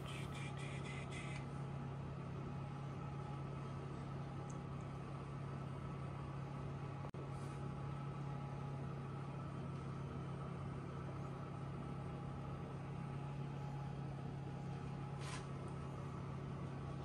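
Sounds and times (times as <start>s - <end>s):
low mechanical hum: 0.0s - 17.0s
short hiss: 15.2s - 15.5s.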